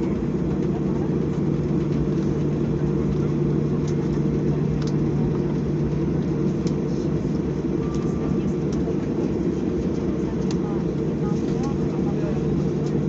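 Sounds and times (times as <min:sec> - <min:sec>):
airplane cabin rumble: 0:00.0 - 0:13.0
faint clicks: 0:03.8 - 0:04.2, 0:04.8 - 0:05.0, 0:09.9 - 0:10.7.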